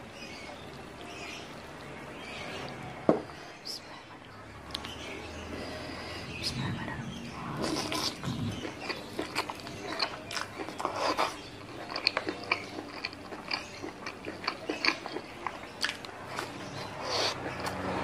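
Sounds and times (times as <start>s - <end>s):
close chewing and biting: 6.4s - 18.0s.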